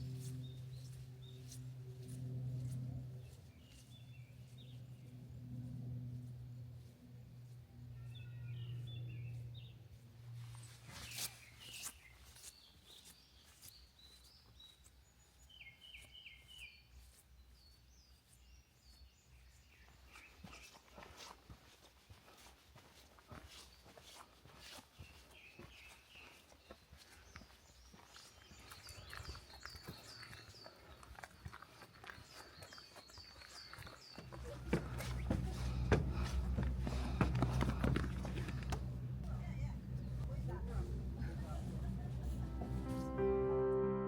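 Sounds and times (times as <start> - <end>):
low steady hum: 0.0 - 10.9, 34.2 - 44.0
faint birdsong: 0.0 - 43.3.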